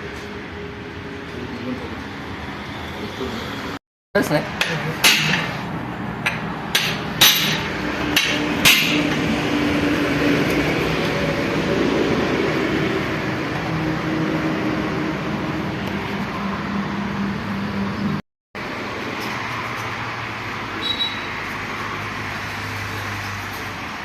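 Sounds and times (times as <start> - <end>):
tool striking metal: 4.6 - 9.4.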